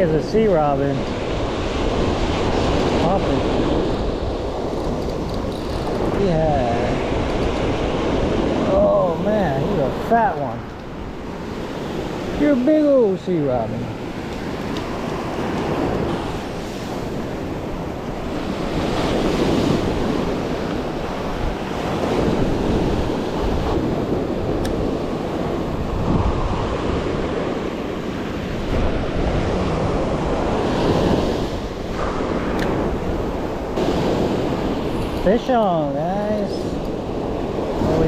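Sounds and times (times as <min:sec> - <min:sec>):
ocean surf breaking: 0:00.0 - 0:38.0
wind buffeting microphone: 0:00.0 - 0:38.0.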